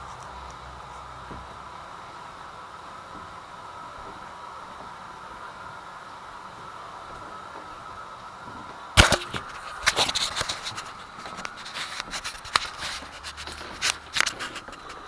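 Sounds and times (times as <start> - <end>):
sharp knock: 9.0 - 10.2
hard objects clicking and scraping: 9.0 - 15.0.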